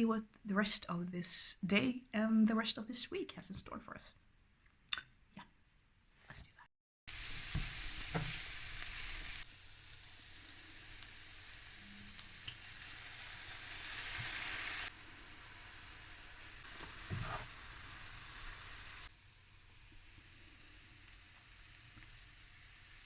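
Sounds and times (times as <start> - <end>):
food sizzling in a frying pan: 7.1 - 23.0.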